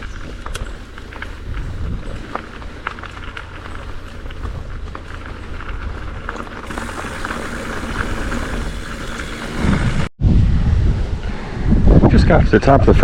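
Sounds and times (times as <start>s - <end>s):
wind rumble on microphone: 0.0s - 7.0s, 7.6s - 13.0s
bike tyres crackling over dirt: 0.0s - 10.1s.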